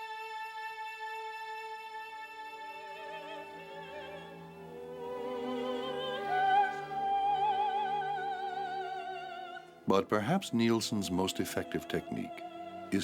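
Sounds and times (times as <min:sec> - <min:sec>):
operatic singing: 0:00.0 - 0:13.0
orchestra playing: 0:09.9 - 0:13.0.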